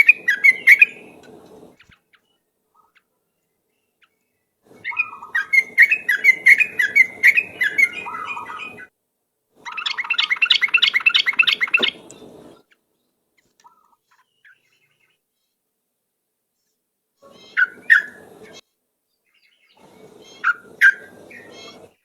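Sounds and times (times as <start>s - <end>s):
bird singing in chattering bursts: 0.0s - 1.2s, 4.8s - 8.9s, 9.7s - 12.8s, 17.3s - 18.6s, 19.2s - 22.0s.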